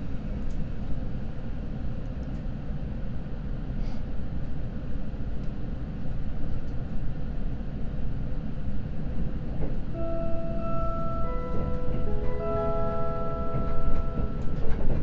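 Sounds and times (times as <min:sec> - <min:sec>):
train interior rumble: 0:00.0 - 0:15.0
electronic chime melody: 0:10.0 - 0:14.6.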